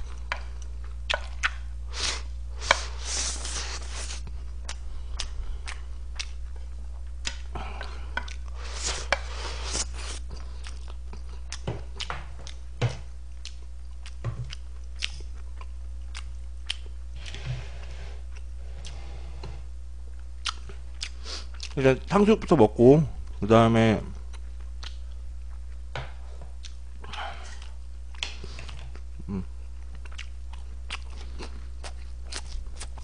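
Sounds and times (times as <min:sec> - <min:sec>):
close chewing with wet mouth sounds: 0:00.0 - 0:01.7, 0:02.7 - 0:12.7, 0:13.3 - 0:17.0, 0:20.1 - 0:22.0, 0:24.3 - 0:25.9, 0:26.5 - 0:33.0
low steady hum: 0:00.0 - 0:33.0.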